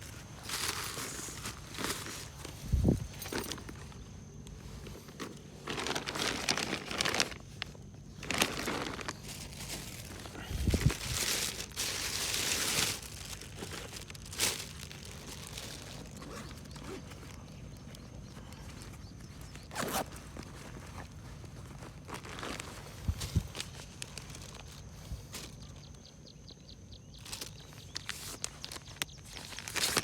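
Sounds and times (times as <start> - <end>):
rustling and crinkling handling: 0.0 - 30.0.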